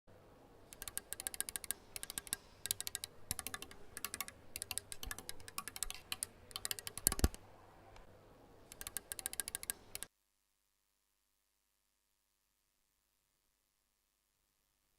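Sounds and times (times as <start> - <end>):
keyboard typing clicks: 0.7 - 7.4, 8.7 - 10.1.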